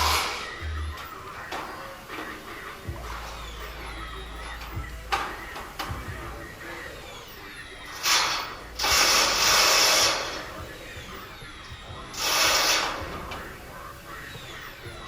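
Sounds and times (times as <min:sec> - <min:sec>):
handheld power tool running: 0:07.9 - 0:10.5, 0:12.2 - 0:13.1.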